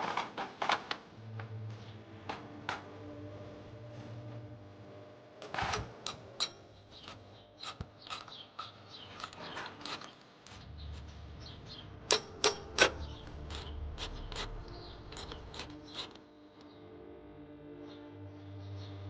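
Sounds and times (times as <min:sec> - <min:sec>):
low steady hum: 0:01.1 - 0:09.8
metal tools clanking: 0:06.1 - 0:10.2.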